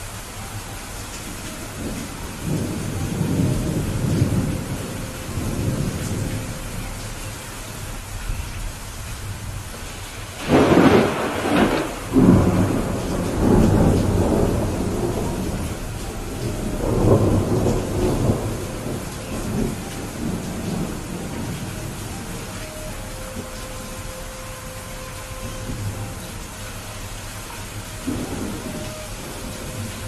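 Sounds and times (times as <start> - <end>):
heavy rain: 0.0 - 30.0
thunder cracking and rumbling: 1.8 - 7.2, 9.3 - 22.4, 28.0 - 30.0.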